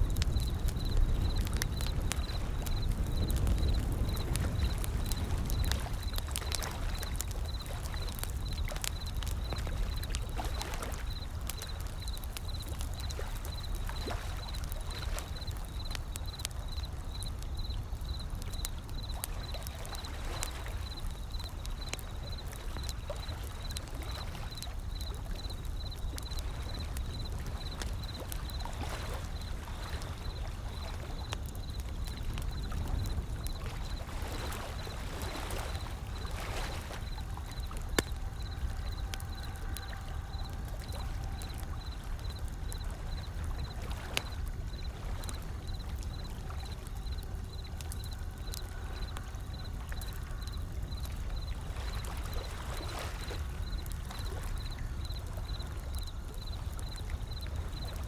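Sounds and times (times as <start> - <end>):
wood fire crackling and popping: 0.0 - 58.0
waves rolling in: 26.7 - 47.6.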